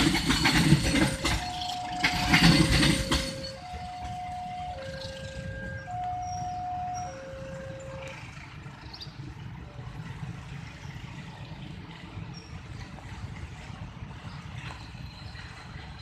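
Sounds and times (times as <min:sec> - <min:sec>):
train rattling rumble: 0:00.0 - 0:16.0
level crossing alarm two-tone: 0:00.8 - 0:08.1.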